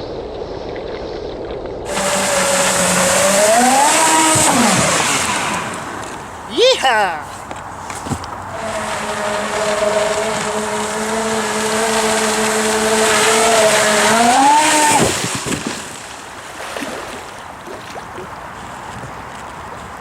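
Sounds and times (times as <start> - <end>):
wind: 0.0 - 20.0
jet drive whining: 1.9 - 15.6
water rushing: 1.9 - 20.0.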